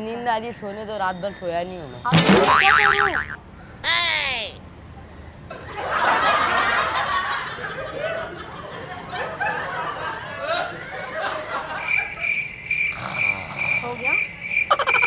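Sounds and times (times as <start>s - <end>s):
people laughing and giggling: 5.5s - 12.1s
cricket chirping sound effect: 11.8s - 15.0s.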